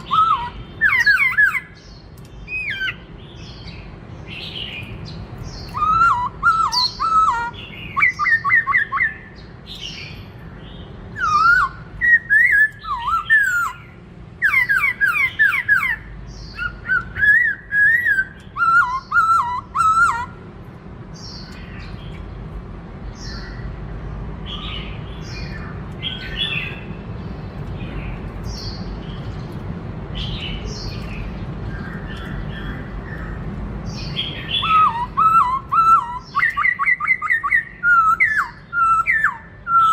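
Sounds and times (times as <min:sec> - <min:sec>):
bird singing whistled phrases: 0:00.0 - 0:01.8, 0:02.5 - 0:03.0, 0:05.5 - 0:10.1, 0:11.1 - 0:20.4, 0:34.1 - 0:39.9.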